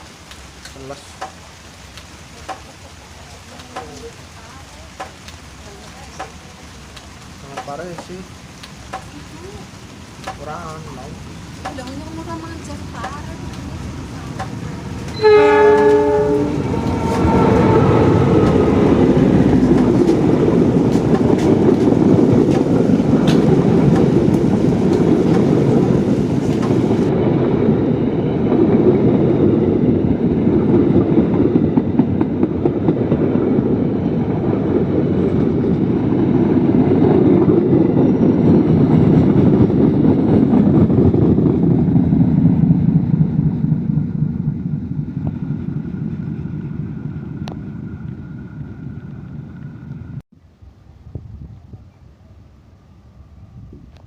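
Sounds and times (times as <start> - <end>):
train passing rumble: 0.0 - 54.0
wheels clicking over rail joints: 0.3 - 9.6, 10.2 - 17.2, 18.4 - 27.1
locomotive horn: 15.1 - 20.2.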